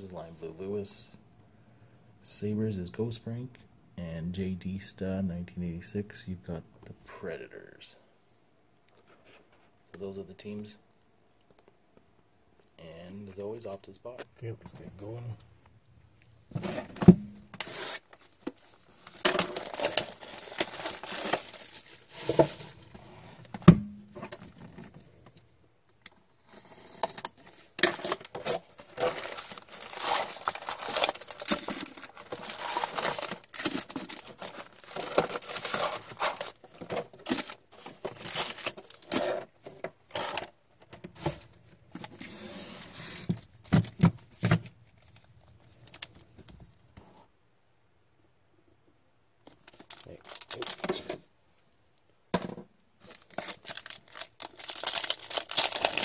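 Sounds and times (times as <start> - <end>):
foil wrappers tearing and crinkling: 18.9 - 22.9, 27.8 - 39.4, 49.6 - 51.1, 53.0 - 56.0.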